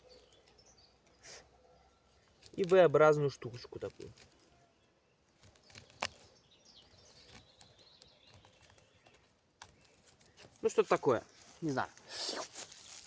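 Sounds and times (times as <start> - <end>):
faint bird chirps: 0.0 - 2.4.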